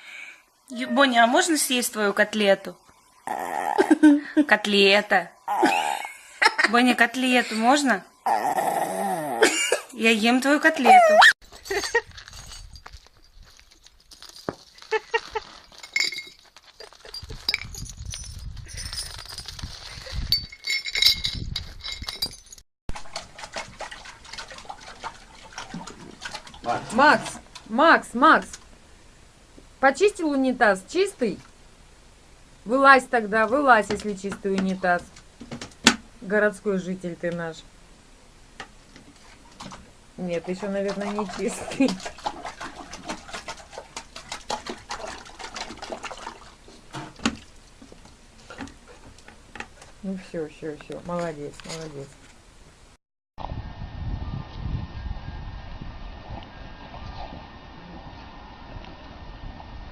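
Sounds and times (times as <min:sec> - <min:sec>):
clinks and knocks: 0:11.4 - 0:22.6
dog lapping water: 0:22.9 - 0:27.7, 0:39.1 - 0:49.2.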